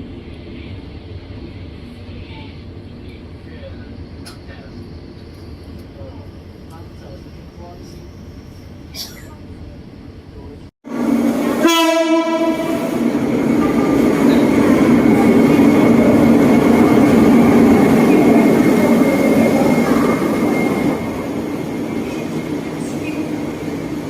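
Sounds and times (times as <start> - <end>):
train wheels rumbling on rail: 0.0 - 24.0
train horn blast: 10.9 - 13.2.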